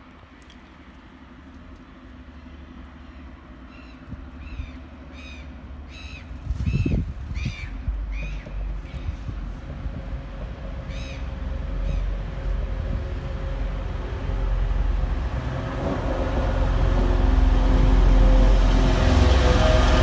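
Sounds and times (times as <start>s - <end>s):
train engine drone: 0.0s - 6.4s, 7.2s - 20.0s
train wheel rumble: 0.0s - 20.0s
bird calling: 3.0s - 9.3s.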